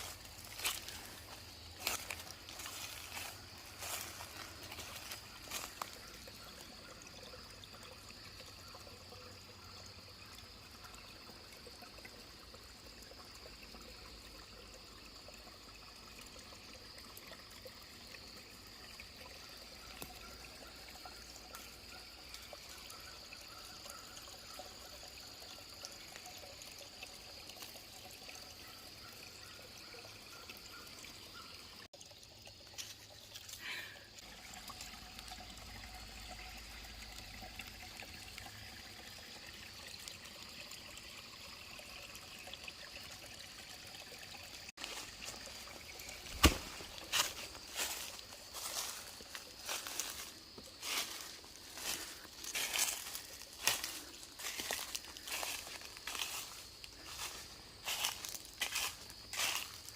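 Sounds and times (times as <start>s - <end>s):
stream trickling over rocks: 0.0s - 59.9s.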